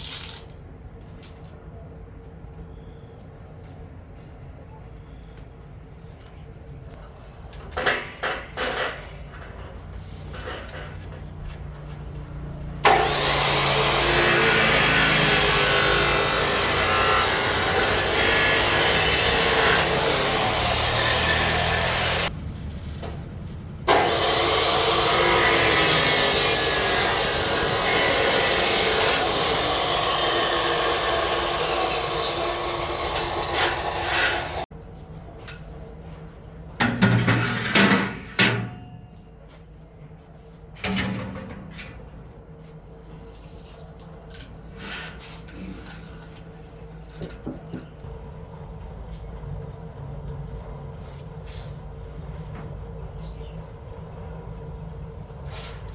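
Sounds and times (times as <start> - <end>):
tool rasping a surface: 23.9 - 34.6.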